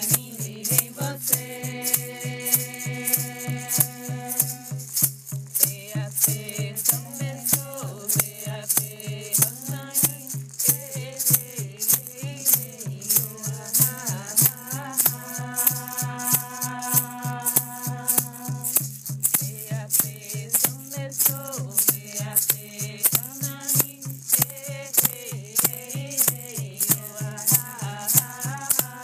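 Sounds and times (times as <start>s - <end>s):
person chanting: 0.0s - 4.8s, 5.6s - 18.8s, 24.9s - 29.0s
rattle shaking: 0.0s - 29.0s.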